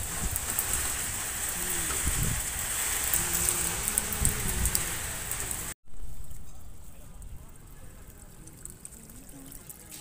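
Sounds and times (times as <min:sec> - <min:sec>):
heavy rain on street: 0:00.0 - 0:05.8
quiet water sound: 0:02.7 - 0:10.0.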